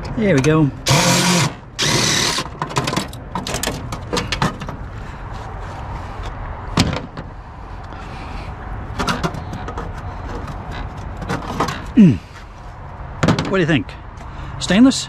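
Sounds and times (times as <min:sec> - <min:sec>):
printer parts clicking and rattling: 0:00.0 - 0:04.8, 0:09.0 - 0:12.0.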